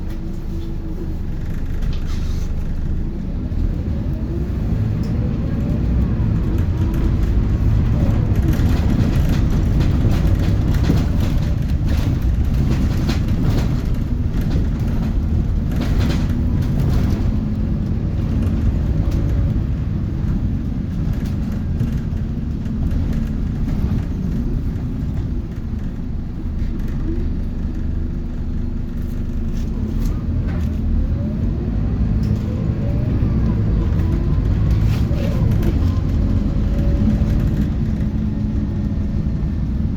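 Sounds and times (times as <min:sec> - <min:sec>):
bus engine and road rumble: 0:00.0 - 0:39.9
rising engine whine: 0:21.8 - 0:39.9.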